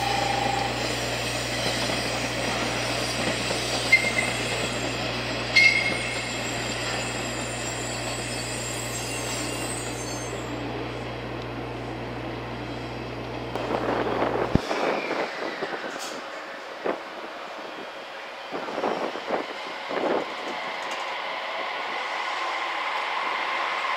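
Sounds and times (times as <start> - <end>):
high wheel squeals: 0.0 - 10.6.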